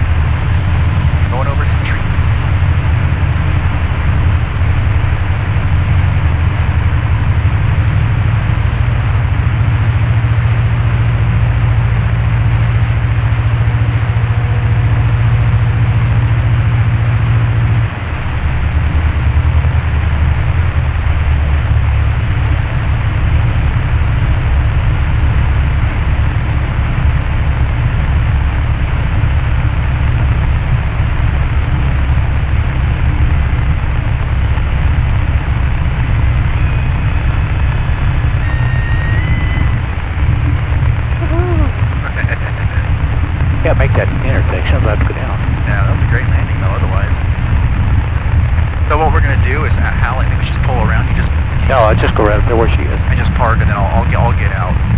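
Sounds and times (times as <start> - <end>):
airplane engine droning in cabin: 0.0 - 54.9.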